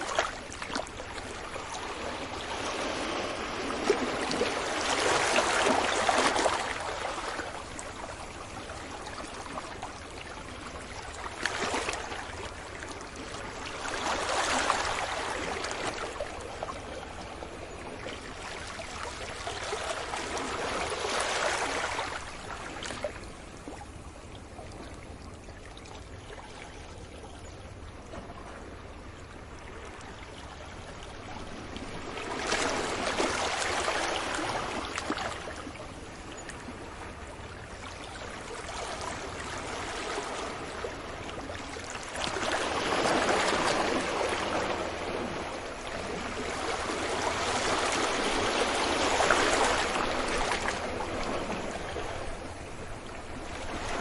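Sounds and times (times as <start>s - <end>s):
ocean waves breaking: 0.0s - 7.7s, 31.5s - 35.7s, 38.6s - 54.0s.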